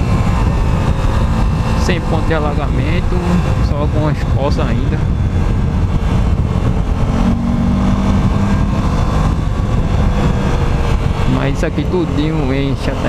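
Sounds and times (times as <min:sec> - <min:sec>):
road and wind noise: 0:00.0 - 0:13.0
vehicle engine running: 0:00.0 - 0:13.0.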